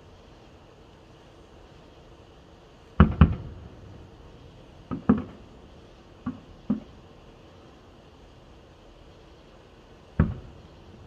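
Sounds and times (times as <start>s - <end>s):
distant firework shells bursting: 3.0s - 3.6s, 4.8s - 5.5s, 10.1s - 11.0s.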